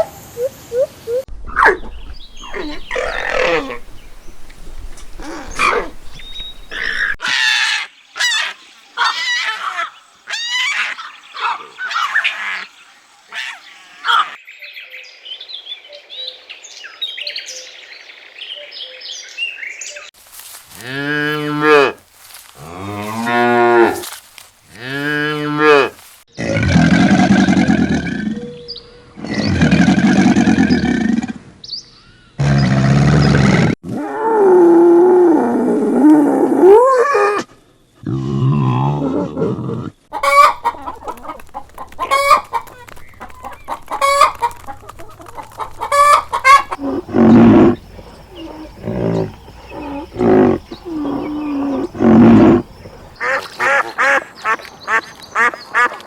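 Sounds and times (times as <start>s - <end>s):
cattle mooing: 2.4s - 4.0s, 20.7s - 26.1s, 46.4s - 52.6s.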